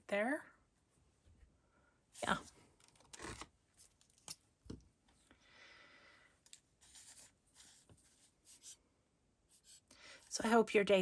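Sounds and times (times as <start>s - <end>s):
soft rubbing scratch: 6.8s - 8.8s, 9.5s - 9.9s.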